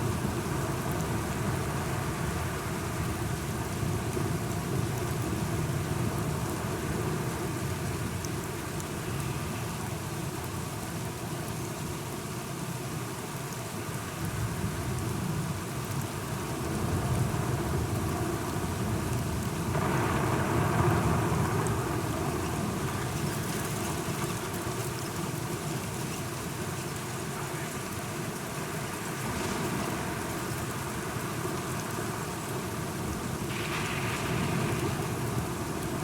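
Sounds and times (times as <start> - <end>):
steady rain falling: 0.0 - 36.0
rolling thunder: 19.7 - 23.5, 33.4 - 36.0.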